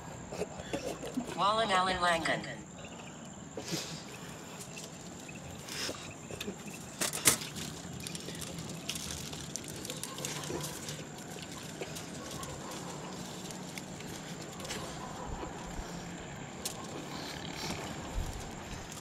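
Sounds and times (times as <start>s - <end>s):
background hiss: 0.0s - 9.1s.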